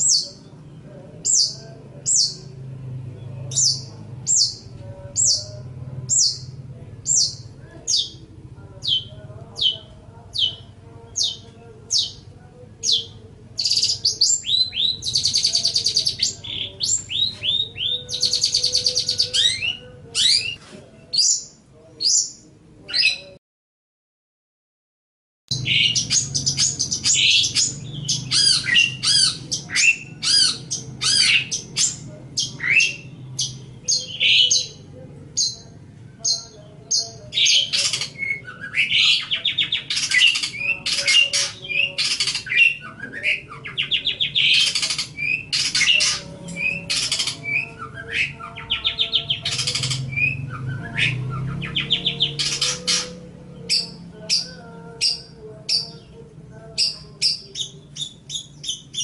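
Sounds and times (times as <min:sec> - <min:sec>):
harsh scratchy bird chattering: 0:25.6 - 0:34.8, 0:36.2 - 0:50.3, 0:50.9 - 0:56.0.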